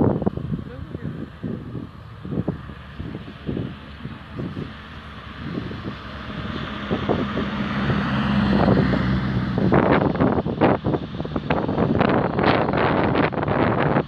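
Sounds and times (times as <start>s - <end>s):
car engine under hard throttle: 0.0s - 14.0s
wind buffeting microphone: 0.0s - 14.0s.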